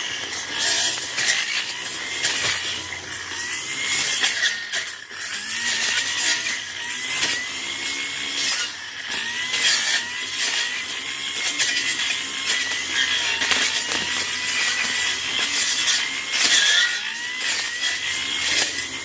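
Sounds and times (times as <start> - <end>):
brush cutter engine at high revs: 0.0 - 19.0
hissing cutting bursts: 0.0 - 19.0.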